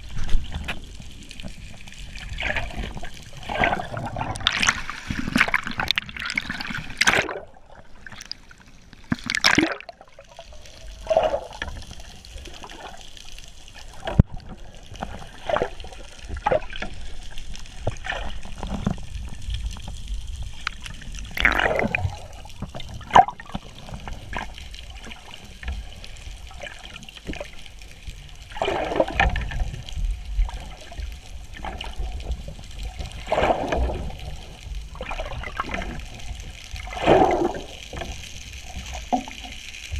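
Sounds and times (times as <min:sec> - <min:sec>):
water gurgling and sloshing: 0:00.0 - 0:39.9
bubbling surges: 0:02.1 - 0:13.0, 0:20.8 - 0:25.3.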